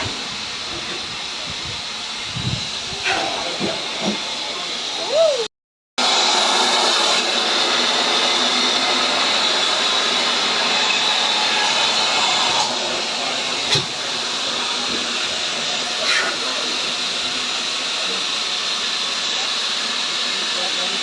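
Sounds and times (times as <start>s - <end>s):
steam locomotive hissing: 0.0s - 21.0s.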